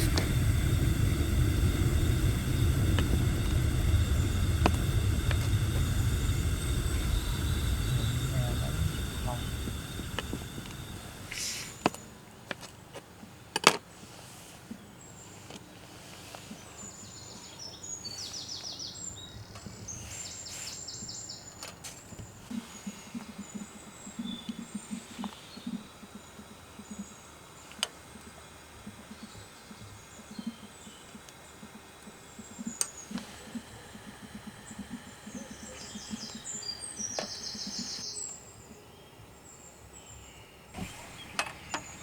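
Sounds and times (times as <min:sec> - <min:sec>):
soft low pulses: 0:00.0 - 0:11.8, 0:40.8 - 0:42.0
small birds chirping: 0:00.0 - 0:11.9, 0:32.3 - 0:42.0.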